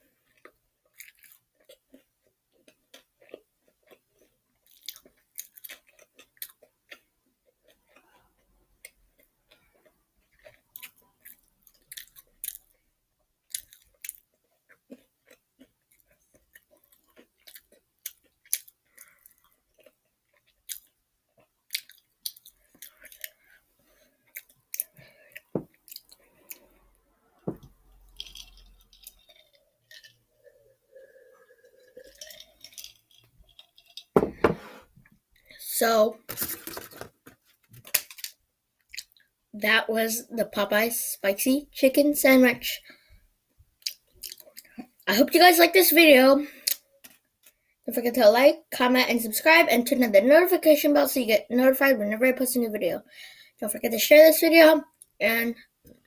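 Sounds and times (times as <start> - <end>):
crunchy chewing: 0.2 - 12.8, 13.4 - 26.8, 28.0 - 34.2
wet mouth sounds: 28.1 - 32.9.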